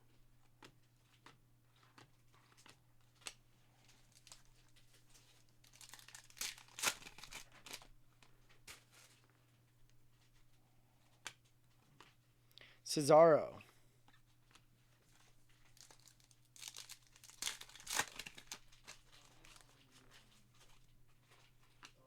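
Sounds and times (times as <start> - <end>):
wrapper tearing and crinkling: 4.0 - 7.9, 15.6 - 19.8.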